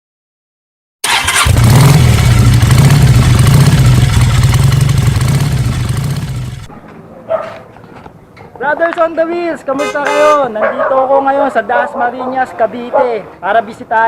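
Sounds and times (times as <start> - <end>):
motorcycle engine running: 1.1 - 6.7.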